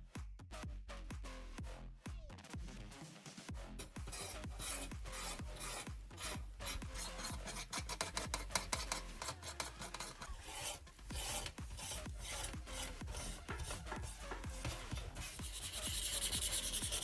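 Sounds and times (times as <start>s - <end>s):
rasping sanding strokes: 3.8s - 17.0s.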